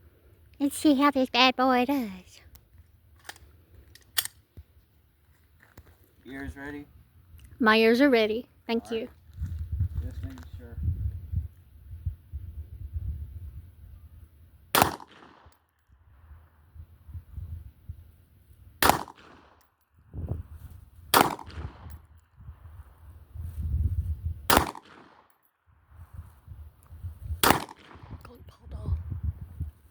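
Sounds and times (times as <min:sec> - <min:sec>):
gunshots: 0:14.7 - 0:15.5, 0:18.8 - 0:19.6, 0:21.1 - 0:22.0, 0:24.5 - 0:25.2, 0:27.4 - 0:28.2.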